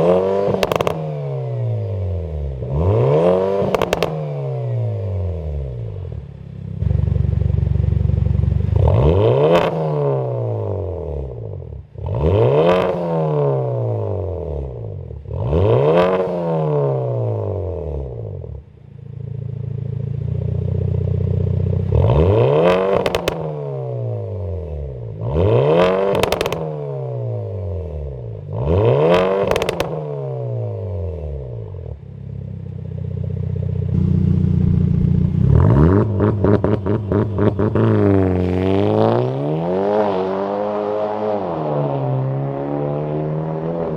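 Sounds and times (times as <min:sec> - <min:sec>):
car engine revving: 0:00.0 - 0:18.6, 0:20.6 - 0:32.0, 0:33.0 - 0:43.9
exhaust crackles and pops: 0:00.5 - 0:01.0, 0:03.6 - 0:04.2, 0:22.6 - 0:23.5, 0:25.8 - 0:26.7, 0:29.1 - 0:30.0.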